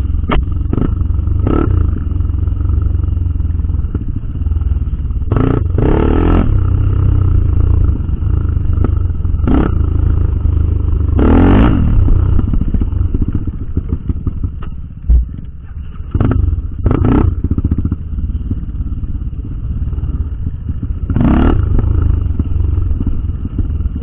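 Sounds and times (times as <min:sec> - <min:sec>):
motorcycle engine running: 0:00.0 - 0:24.0
low thump: 0:14.5 - 0:15.6.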